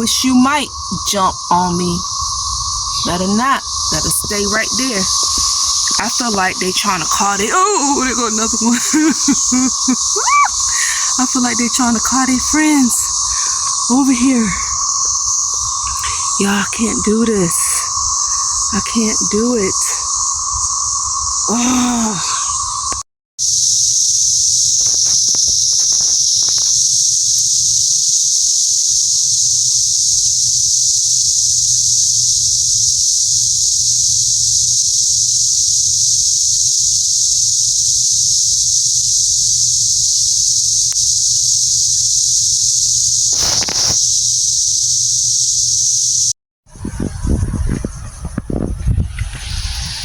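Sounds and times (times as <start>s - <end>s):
cicadas buzzing: 0.0s - 50.0s
brief rustle: 24.8s - 26.8s, 43.3s - 44.0s.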